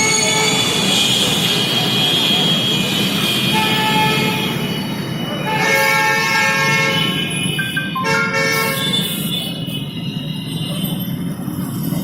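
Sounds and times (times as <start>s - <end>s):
road traffic noise: 0.0s - 12.0s
vehicle horns honking: 5.5s - 9.8s.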